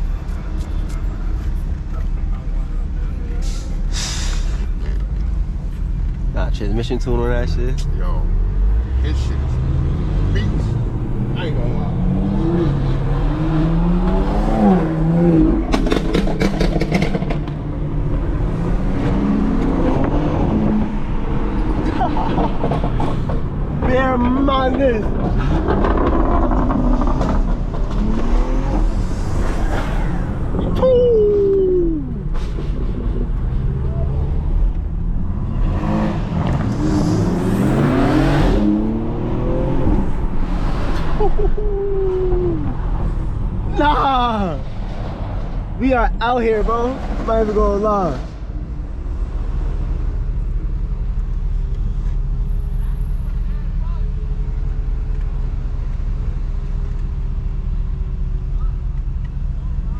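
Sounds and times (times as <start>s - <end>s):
road noise: 0.0s - 59.9s
car engine revving: 6.4s - 51.3s
exhaust pops and crackles: 15.6s - 17.7s, 21.9s - 29.3s.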